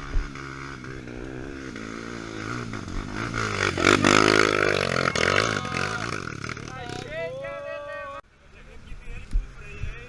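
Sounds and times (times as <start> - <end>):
dirt bike engine revving: 0.0 - 7.4.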